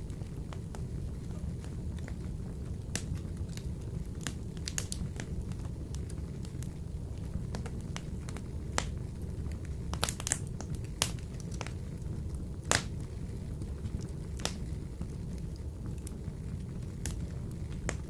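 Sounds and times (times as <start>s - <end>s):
low steady stove rumble: 0.0s - 18.0s
wood fire crackling and popping: 0.0s - 18.0s.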